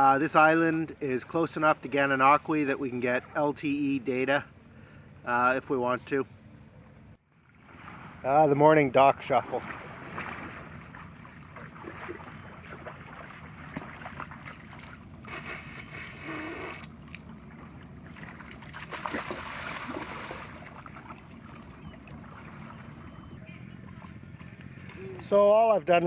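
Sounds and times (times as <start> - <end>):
wind: 0.0 - 26.0
small waves washing on shore: 7.5 - 23.1.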